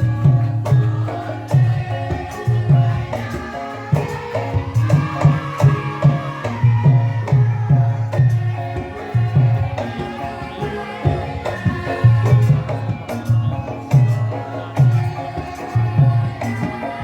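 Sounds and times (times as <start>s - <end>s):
ringing metallophone tones: 0.0s - 17.0s.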